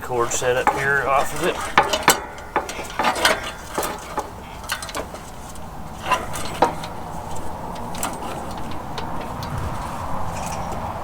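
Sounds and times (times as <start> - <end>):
light clicks and knocks of parts: 0.0 - 11.0.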